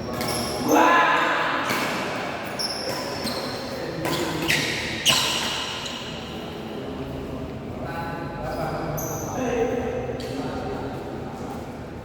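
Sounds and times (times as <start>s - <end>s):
shoes squeaking on court: 0.0s - 0.7s, 1.7s - 6.2s.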